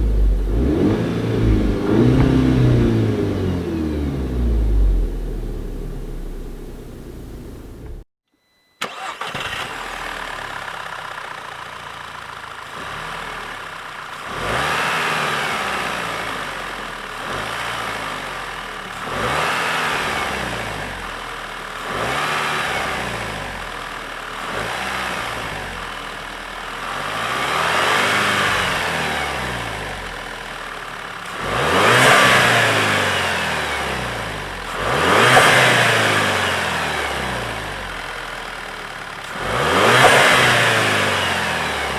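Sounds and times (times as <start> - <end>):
car engine idling and revving: 0.0 - 8.1, 8.8 - 41.9.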